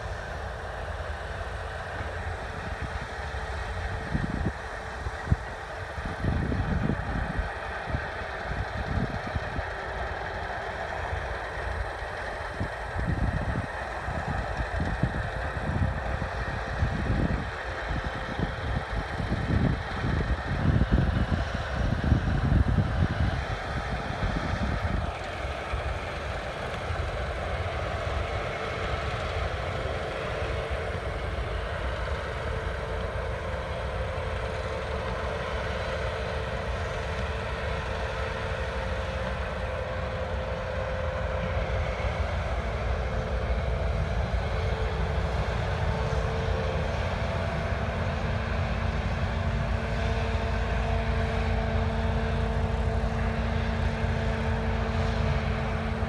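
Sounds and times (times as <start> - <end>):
diesel engine drone: 0.0 - 56.0.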